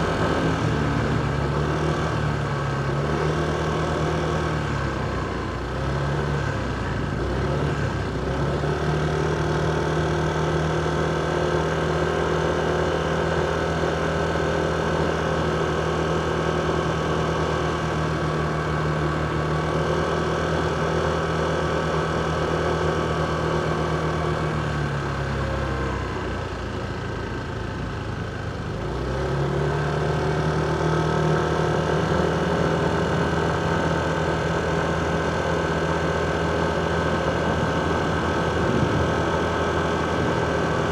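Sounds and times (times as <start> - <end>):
motorcycle engine running: 30.2 - 40.9.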